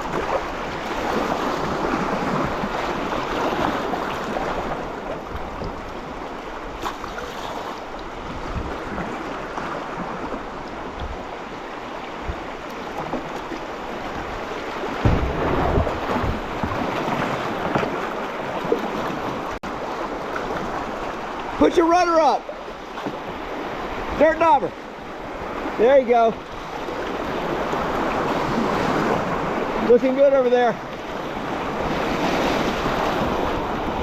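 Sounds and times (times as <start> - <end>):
river water splashing around kayak: 0.0 - 34.0
wind buffeting microphone: 7.8 - 19.6
heavy low thumps: 15.0 - 16.9.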